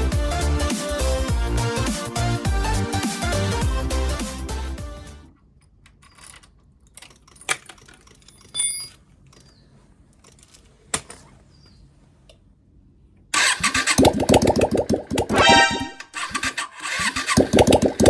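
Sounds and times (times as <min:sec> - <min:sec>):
sharp clicks and ticks: 0:13.4 - 0:18.0.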